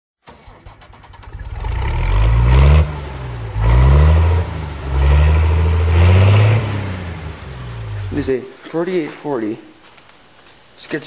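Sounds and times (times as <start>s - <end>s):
loader engine revving: 0.3s - 8.4s.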